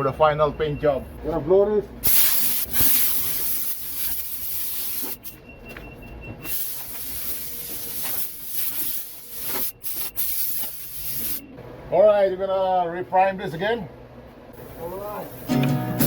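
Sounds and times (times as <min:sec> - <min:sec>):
compressed air blow gun hissing: 0:02.0 - 0:05.3, 0:06.5 - 0:11.4, 0:14.6 - 0:15.7.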